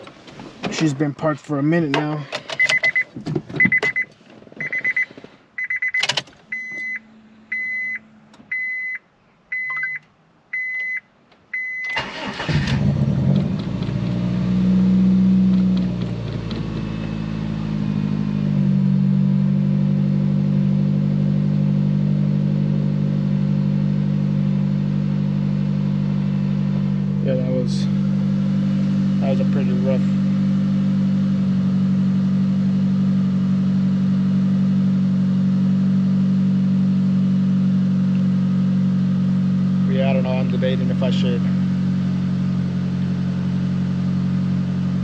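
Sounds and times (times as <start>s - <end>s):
car engine starting and idling: 0.0s - 8.9s, 9.5s - 45.0s
dashboard warning chime beeping: 2.6s - 12.2s.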